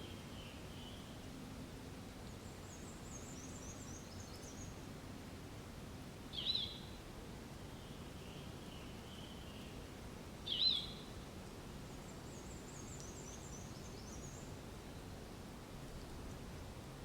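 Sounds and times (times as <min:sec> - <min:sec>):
faint steady background noise: 0:00.0 - 0:17.0.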